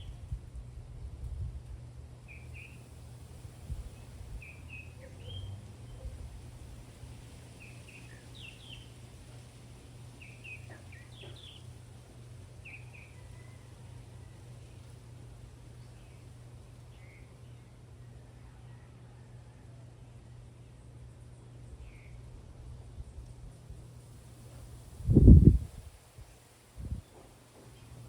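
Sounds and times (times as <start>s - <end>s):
low outdoor rumble: 0.0s - 28.0s
birds chirping: 10.2s - 11.7s.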